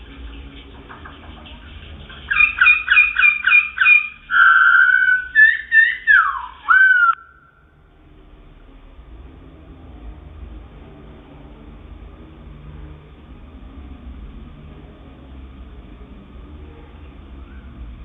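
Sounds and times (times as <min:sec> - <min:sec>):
songbird whistling: 0:02.3 - 0:07.6.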